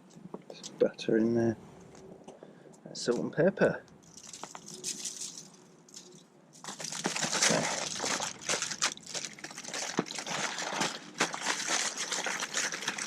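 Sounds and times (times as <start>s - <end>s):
tin foil crinkling: 4.0s - 13.0s.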